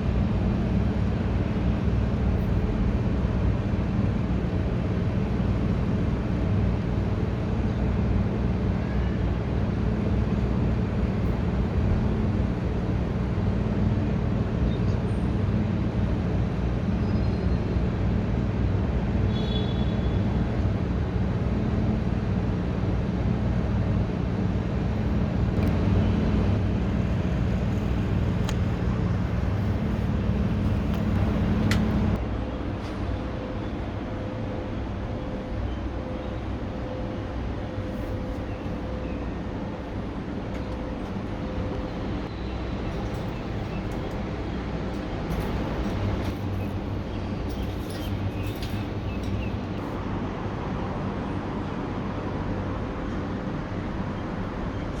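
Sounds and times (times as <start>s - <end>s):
low mechanical hum: 0.0s - 55.0s.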